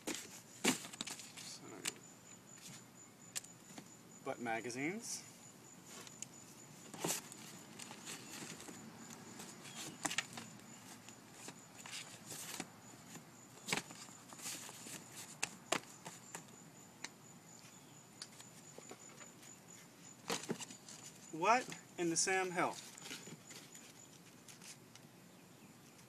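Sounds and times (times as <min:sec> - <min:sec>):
rustling: 0:00.0 - 0:01.6, 0:05.8 - 0:16.5, 0:22.7 - 0:25.0
knocks and clunks of belongings: 0:00.0 - 0:02.0, 0:06.9 - 0:16.5, 0:20.2 - 0:21.8.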